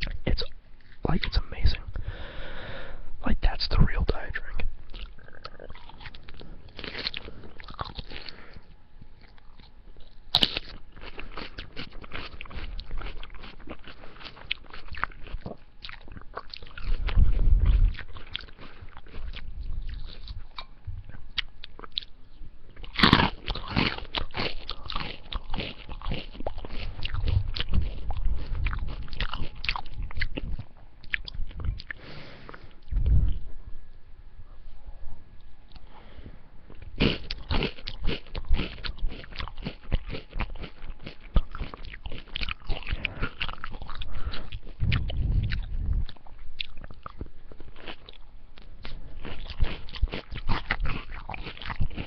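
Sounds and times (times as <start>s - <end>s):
chewing crunchy salad: 4.6s - 33.5s, 36.7s - 52.0s.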